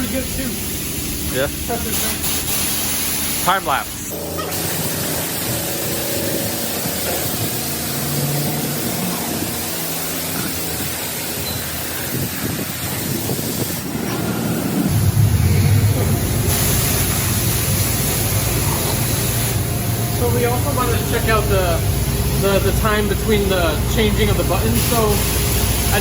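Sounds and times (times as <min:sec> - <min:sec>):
pressure washer spraying water: 0:00.0 - 0:26.0
low hum: 0:13.8 - 0:25.9.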